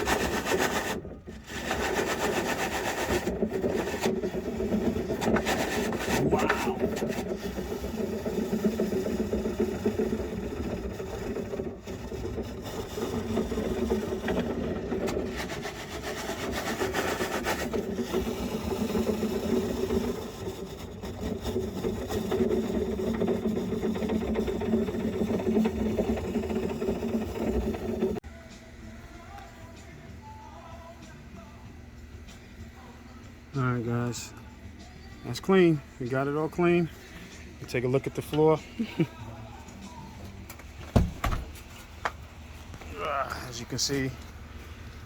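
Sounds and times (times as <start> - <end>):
small electric motor running: 0.0 - 28.2.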